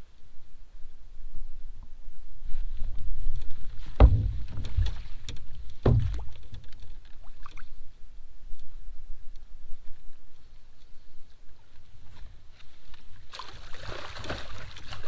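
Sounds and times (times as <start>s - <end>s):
sharp knocks on kayak: 4.0s - 6.8s.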